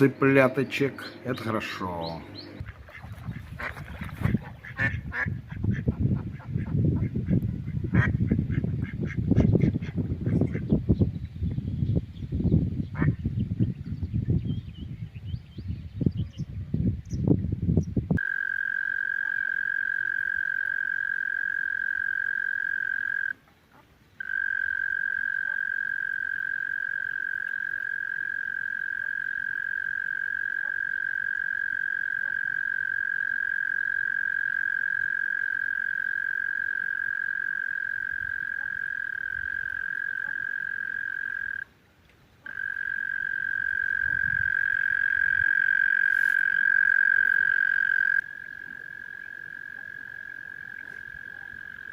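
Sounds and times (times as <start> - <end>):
frog high-pitched trill: 18.2 - 23.4, 24.2 - 41.7, 42.4 - 51.9.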